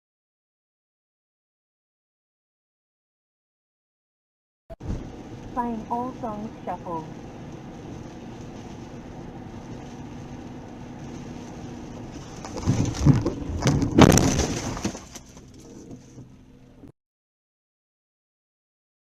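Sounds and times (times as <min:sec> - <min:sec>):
car driving: 0:04.7 - 0:16.9
car crash with crunching metal: 0:12.2 - 0:15.6.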